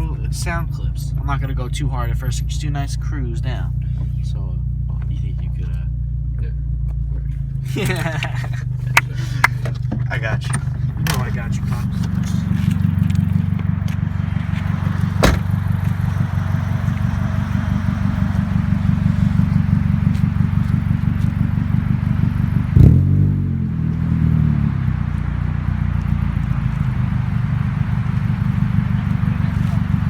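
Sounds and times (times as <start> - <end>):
car engine exhaust note: 0.0 - 30.0
exhaust crack: 0.0 - 30.0
exhaust bang: 7.0 - 30.0.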